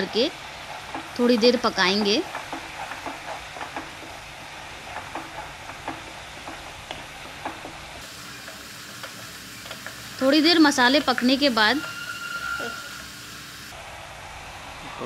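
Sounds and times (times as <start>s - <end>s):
sauce sizzling in oil: 0.0s - 13.8s
spatula scraping and tapping pan: 0.7s - 10.1s.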